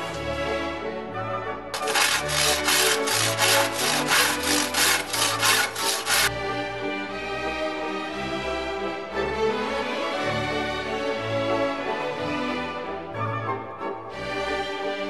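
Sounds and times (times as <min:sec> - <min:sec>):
hand saw cutting: 0:01.8 - 0:06.3.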